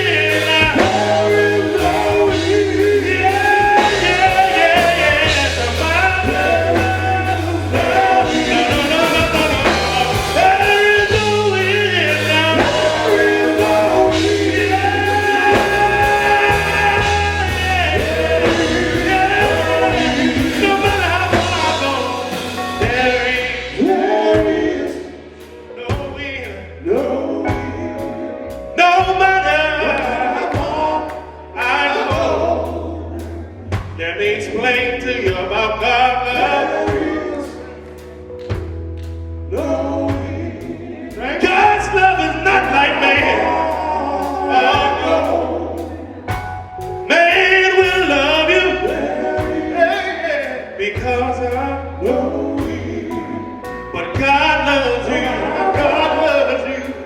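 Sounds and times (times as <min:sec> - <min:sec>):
vocal group singing in harmony: 0:00.0 - 0:38.6, 0:39.5 - 0:57.0
band with steady bass line: 0:00.0 - 0:57.0.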